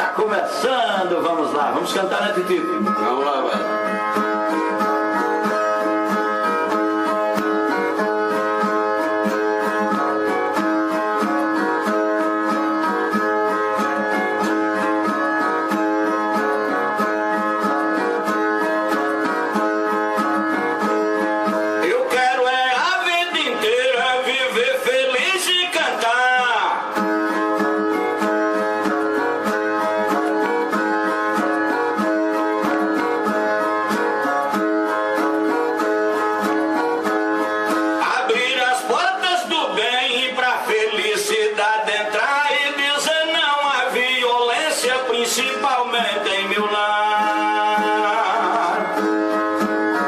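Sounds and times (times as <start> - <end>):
plucked guitar pattern: 0.0 - 50.0
person singing: 21.8 - 27.2, 38.0 - 50.0.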